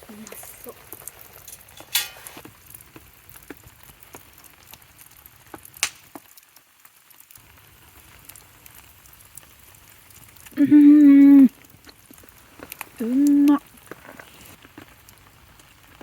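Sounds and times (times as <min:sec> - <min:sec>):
rain and sleet pattering: 0:00.0 - 0:16.0
small ticks and clicks: 0:00.9 - 0:07.4, 0:11.4 - 0:16.0.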